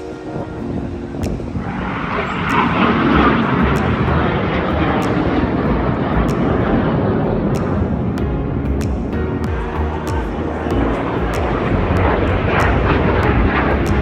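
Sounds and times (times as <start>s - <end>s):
jet aircraft flying past: 1.5s - 8.2s.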